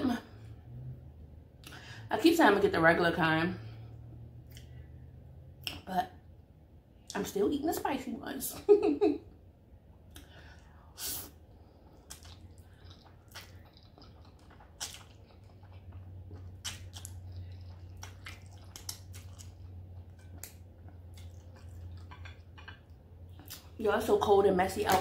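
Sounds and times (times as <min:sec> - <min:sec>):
steady low hum: 0:00.0 - 0:25.0
person chewing noodles: 0:11.5 - 0:23.7.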